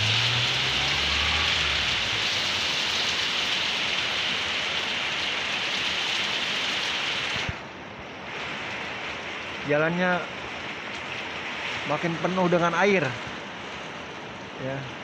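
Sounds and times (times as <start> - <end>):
low hum: 0.0 - 3.5
heavy rain on a flooded road: 0.0 - 15.0.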